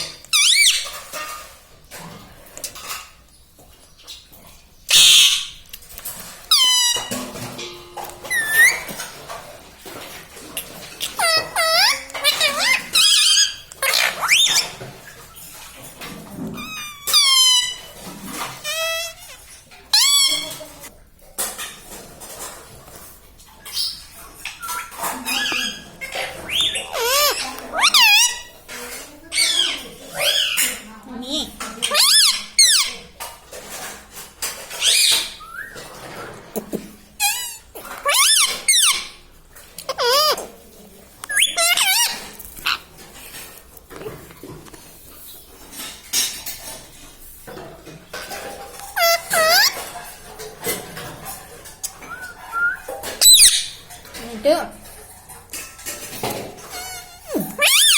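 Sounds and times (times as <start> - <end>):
parrot calls and squawks: 0.0 - 1.2, 4.9 - 5.6, 6.5 - 7.2, 8.0 - 9.1, 10.6 - 14.9, 16.5 - 20.7, 23.7 - 28.7, 29.3 - 30.8, 31.8 - 33.1, 34.7 - 39.2, 39.8 - 40.6, 41.2 - 43.0, 48.8 - 51.1, 51.8 - 53.9, 56.3 - 57.9.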